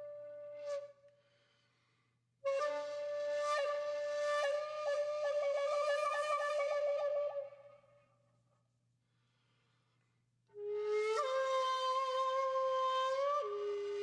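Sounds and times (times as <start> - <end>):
flute long held note: 2.5 - 7.7.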